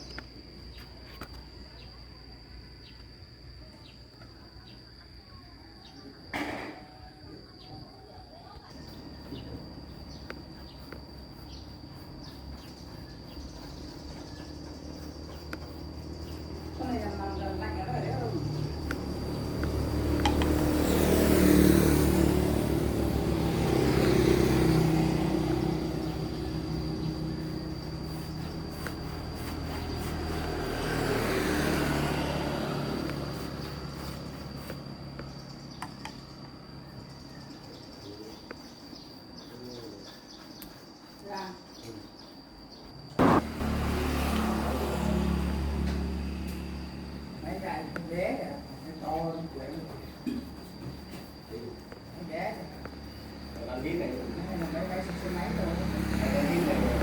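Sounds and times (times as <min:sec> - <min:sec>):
motor vehicle passing: 0:08.7 - 0:37.9, 0:43.2 - 0:57.0
thin high whine: 0:43.2 - 0:45.6
high-pitched whine: 0:43.2 - 0:49.8.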